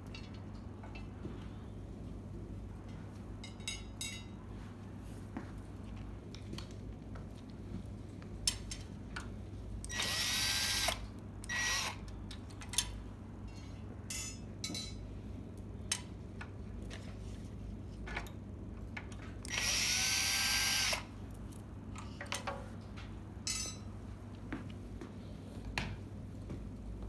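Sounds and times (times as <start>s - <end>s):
power drill spinning up: 9.9s - 12.0s, 19.5s - 21.1s.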